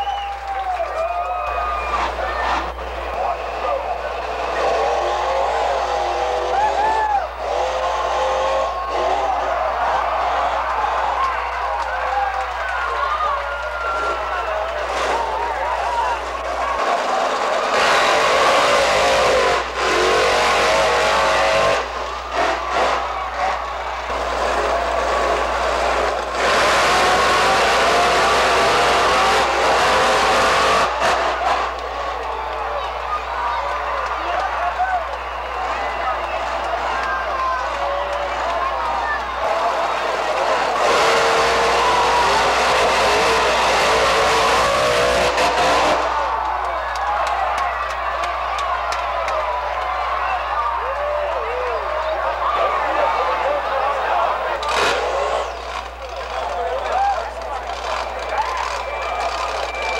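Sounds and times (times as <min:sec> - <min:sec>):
monster truck engines at full throttle: 0:00.0 - 0:59.9
supercharger whine: 0:01.4 - 0:34.7, 0:35.4 - 0:46.8.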